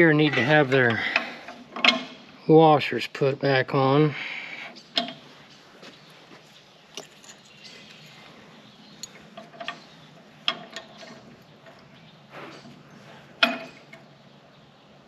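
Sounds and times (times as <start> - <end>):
small metal parts clinking: 6.9 - 8.3.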